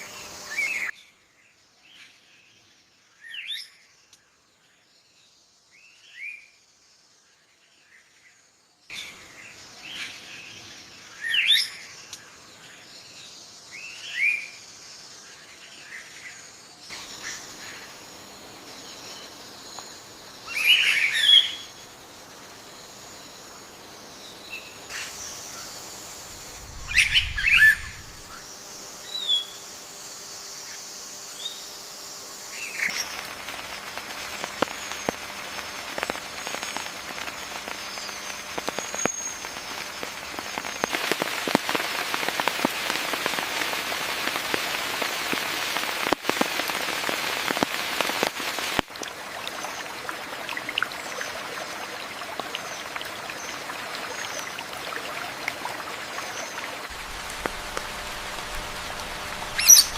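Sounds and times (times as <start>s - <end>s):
rain patter: 24.8s - 28.4s, 32.7s - 59.9s
bird calls: 24.9s - 28.4s, 56.4s - 59.9s
faint bird chirps: 58.5s - 59.9s.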